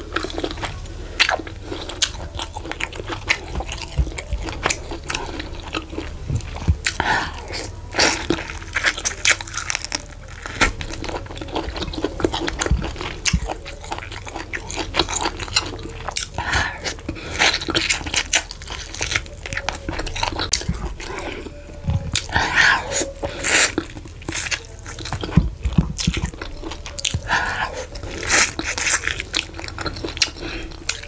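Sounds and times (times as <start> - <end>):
wet chewing and mouth smacking: 0.0 - 31.0.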